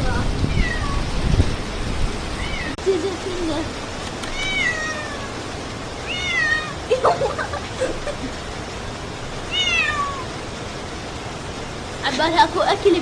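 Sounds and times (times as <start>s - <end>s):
steady rain: 0.0s - 13.0s
cat meowing: 0.5s - 1.1s, 2.4s - 2.8s, 4.2s - 5.4s, 6.0s - 6.9s, 9.5s - 10.4s.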